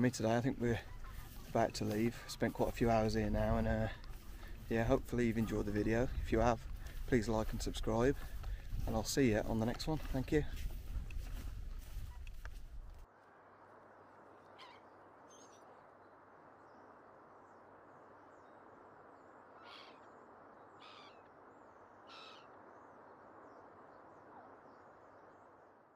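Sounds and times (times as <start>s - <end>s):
short bird calls: 14.5s - 15.8s, 19.6s - 20.1s, 20.8s - 21.3s, 22.0s - 22.6s.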